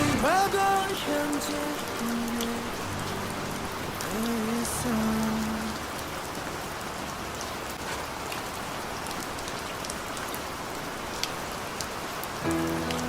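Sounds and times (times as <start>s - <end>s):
music: 0.0s - 5.7s, 12.4s - 13.0s
steady rain falling: 0.0s - 13.0s.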